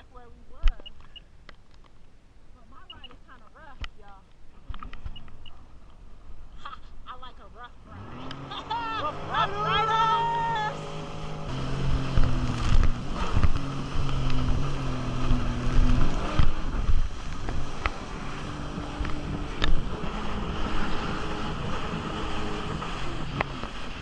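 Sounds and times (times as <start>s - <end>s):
jet ski engine running: 7.7s - 24.0s
water rushing past: 7.8s - 24.0s.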